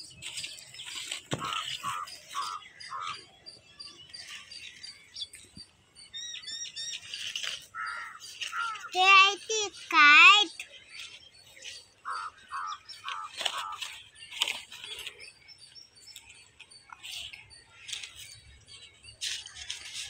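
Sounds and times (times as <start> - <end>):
paper plates rustling: 0.0 - 2.3, 13.0 - 15.2
bird calls: 0.0 - 20.0.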